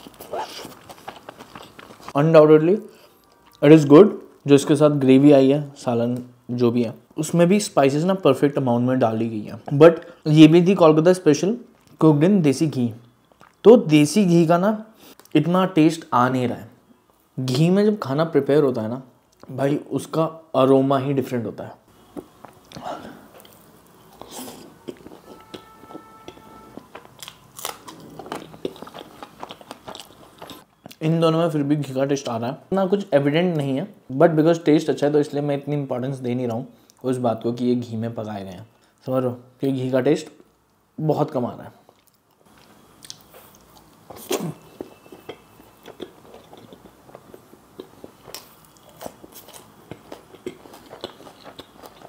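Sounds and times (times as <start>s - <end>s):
person chewing food: 0.0s - 2.2s, 22.1s - 30.9s, 41.9s - 52.0s.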